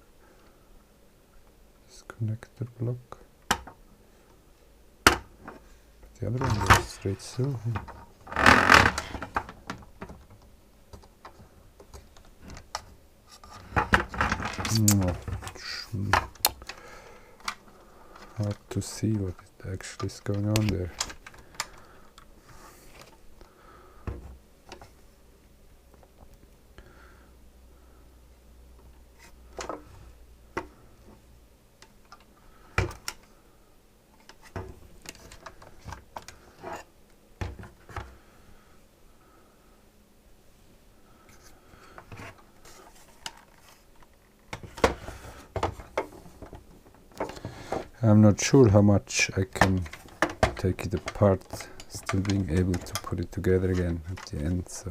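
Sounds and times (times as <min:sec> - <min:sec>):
plastic scraping: 0:06.2 - 0:10.4, 0:11.2 - 0:21.9, 0:49.4 - 0:54.9
plastic parts clicking and tapping: 0:07.7 - 0:16.8, 0:17.4 - 0:22.3, 0:31.8 - 0:33.3, 0:49.4 - 0:54.8.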